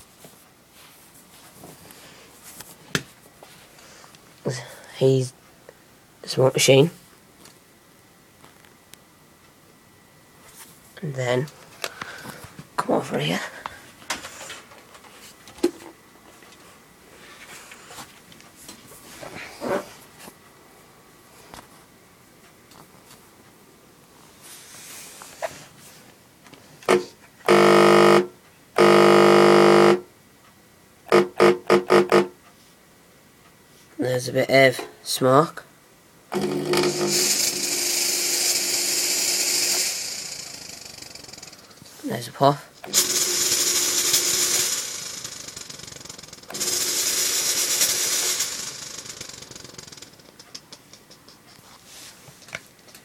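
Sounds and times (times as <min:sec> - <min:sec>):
fog machine pump buzzing: 0:26.8 - 0:30.1, 0:31.1 - 0:32.4, 0:36.3 - 0:42.0, 0:42.7 - 0:50.2.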